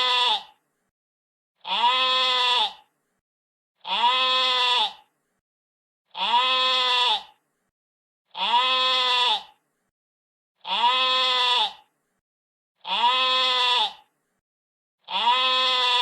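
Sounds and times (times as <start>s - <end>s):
sheep bleating: 0.0s - 0.6s, 1.6s - 2.9s, 3.8s - 5.1s, 6.1s - 7.4s, 8.3s - 9.6s, 10.6s - 11.9s, 12.8s - 14.1s, 15.0s - 16.0s.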